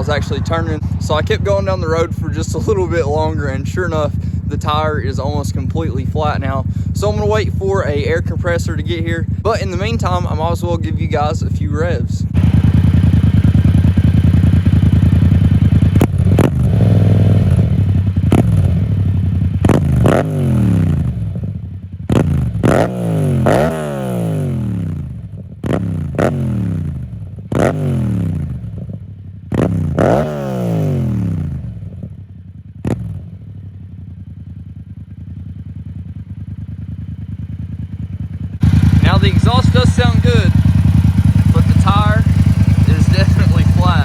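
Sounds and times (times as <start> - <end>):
exhaust crack: 0.0 - 35.0, 36.5 - 44.0
motorcycle engine revving: 0.0 - 44.0.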